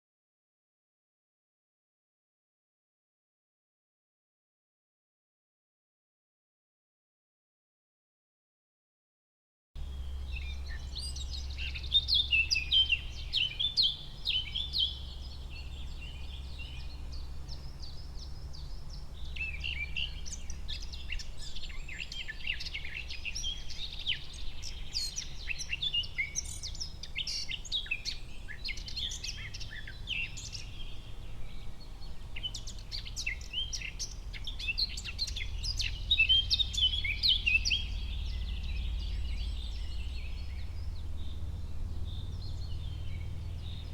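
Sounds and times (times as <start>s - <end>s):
songbirds chirping and trilling: 9.8s - 43.9s
steady low rumble: 29.6s - 43.9s.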